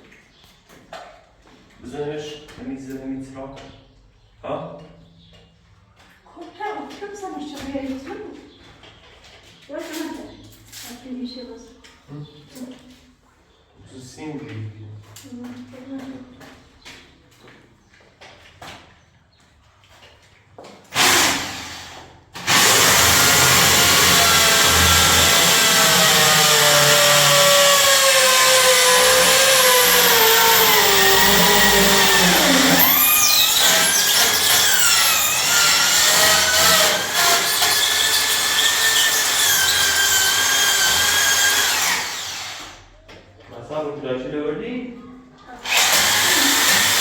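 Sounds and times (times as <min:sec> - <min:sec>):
electric power drill running: 0:20.9 - 0:42.8, 0:45.6 - 0:47.0.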